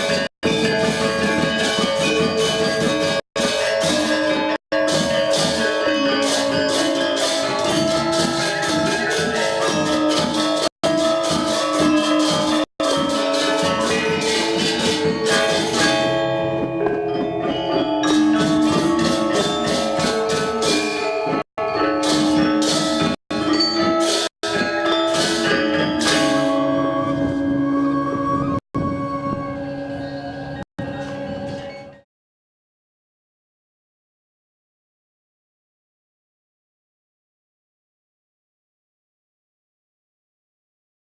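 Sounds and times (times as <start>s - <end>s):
high hissing metal percussion: 0.0s - 16.2s, 18.0s - 27.2s
gamelan metallophones and gongs: 0.0s - 30.3s.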